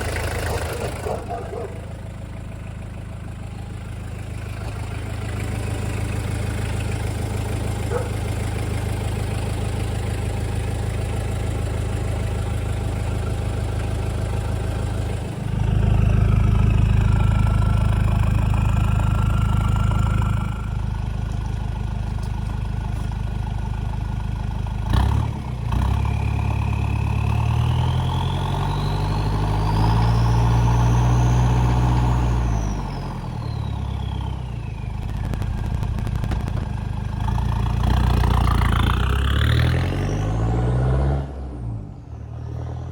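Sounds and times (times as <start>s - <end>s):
diesel engine idling and revving: 0.0s - 42.9s
turbo whine: 33.6s - 38.9s.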